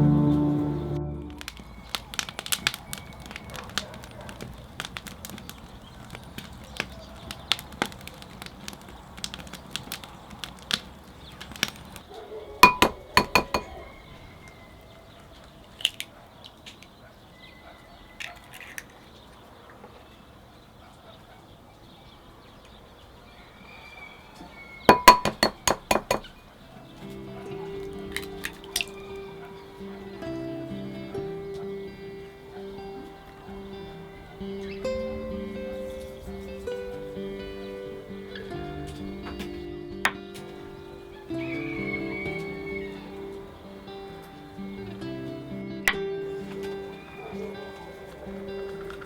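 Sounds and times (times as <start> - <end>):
utensil clinking glass bowl: 12.6 - 13.8, 24.9 - 26.3.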